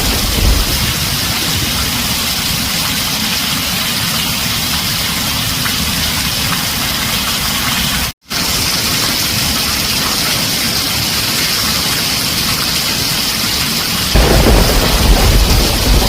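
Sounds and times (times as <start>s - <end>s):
deep rumble of thunder: 0.0s - 2.9s, 14.2s - 16.0s
heavy rain on a tin roof: 0.0s - 16.0s.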